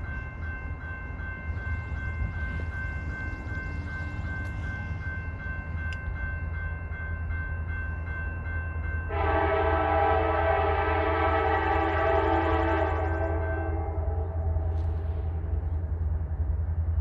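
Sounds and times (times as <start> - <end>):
diesel locomotive rumbling past: 0.0 - 17.0
train air horn chord: 9.1 - 15.6.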